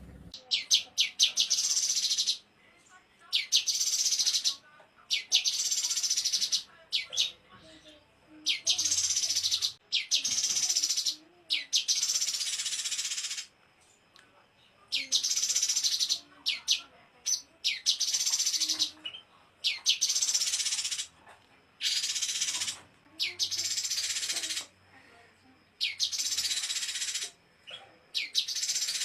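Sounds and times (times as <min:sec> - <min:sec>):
songbird singing high trills: 0:25.8 - 0:29.0.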